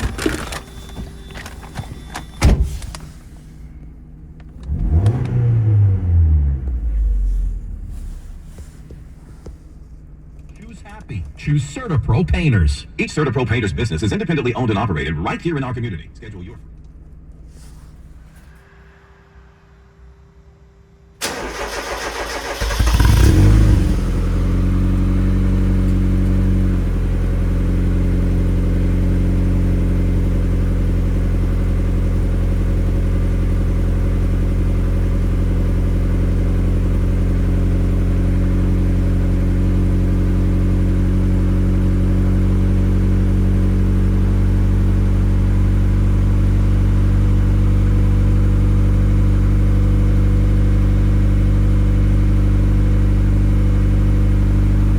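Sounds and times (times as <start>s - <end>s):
car engine idling: 0.0s - 18.6s, 21.2s - 54.9s
starter motor cranking: 21.2s - 23.4s.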